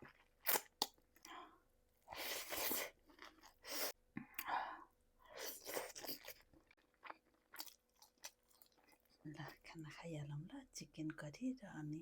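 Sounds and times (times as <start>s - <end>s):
chewing and wet mouth sounds: 5.5s - 9.6s.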